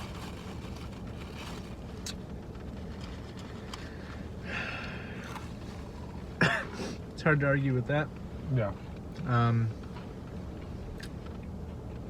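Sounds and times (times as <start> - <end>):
faint rustle: 0.0 - 6.4
low hum inside car: 0.0 - 12.0.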